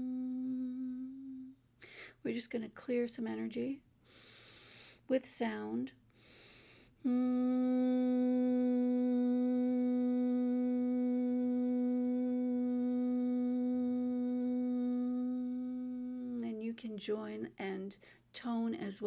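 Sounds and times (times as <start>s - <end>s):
woman toning a long note: 0.0s - 1.5s, 7.0s - 16.4s.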